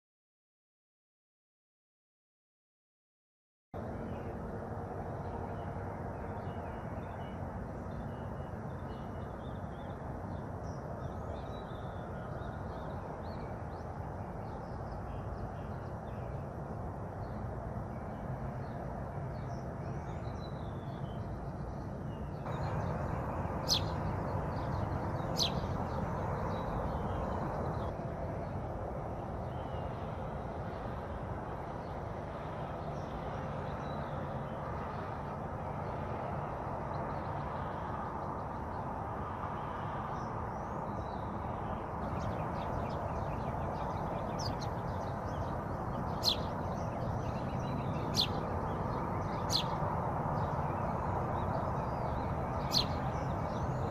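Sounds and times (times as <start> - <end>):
low rushing background: 3.8 - 53.9
small birds chirping: 5.2 - 30.9, 40.2 - 53.9.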